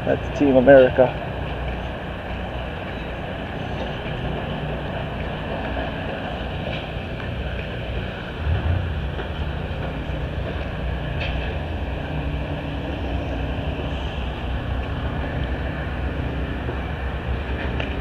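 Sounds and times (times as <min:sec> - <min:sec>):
low mechanical rumble: 0:07.2 - 0:18.0.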